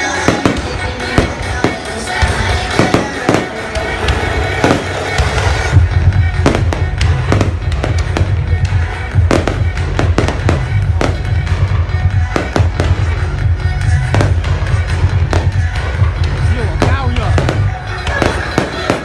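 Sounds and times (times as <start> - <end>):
fireworks exploding: 0.0 - 19.0.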